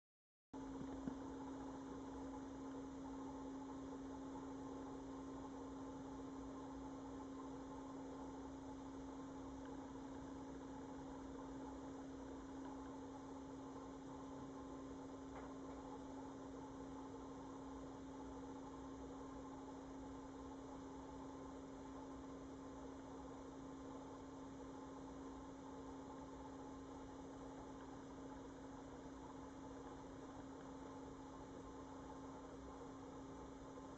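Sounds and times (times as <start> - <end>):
faint electrical hum: 0.6 - 33.9
faint tick: 9.6 - 9.8, 12.6 - 12.9.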